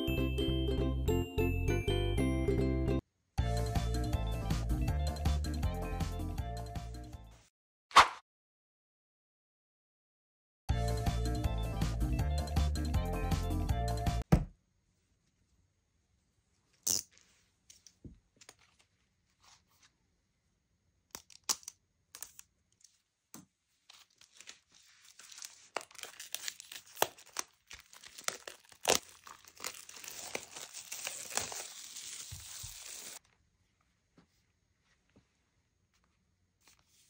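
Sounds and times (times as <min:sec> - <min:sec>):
plastic wrap crinkling and tearing: 0:23.9 - 0:33.2.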